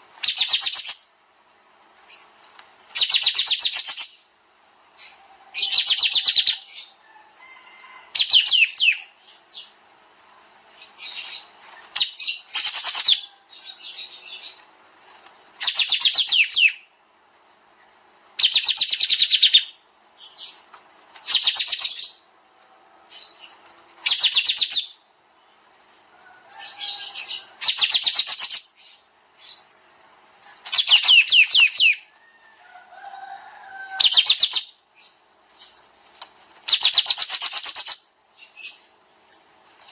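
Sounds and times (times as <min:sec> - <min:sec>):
songbird rapid trilled bursts: 0:00.2 - 0:01.2, 0:02.1 - 0:04.3, 0:05.0 - 0:06.9, 0:10.8 - 0:14.6, 0:15.6 - 0:16.9, 0:18.3 - 0:20.6, 0:21.2 - 0:22.3, 0:23.2 - 0:25.0, 0:26.6 - 0:32.1, 0:34.0 - 0:39.6.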